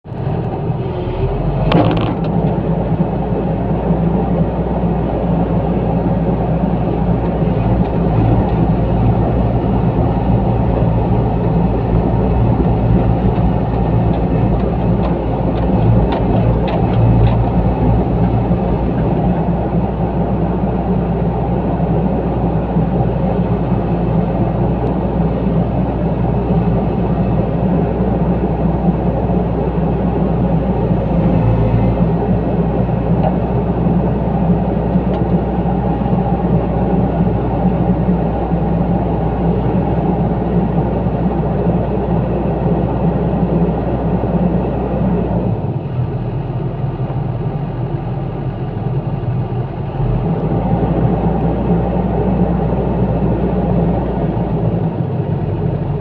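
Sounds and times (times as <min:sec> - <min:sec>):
excavator engine running: 0:00.0 - 0:56.0.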